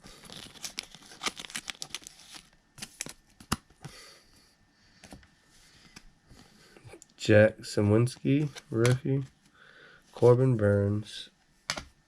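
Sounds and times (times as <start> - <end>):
trading cards and wrapper crinkling: 0.1 - 3.8, 8.0 - 9.2.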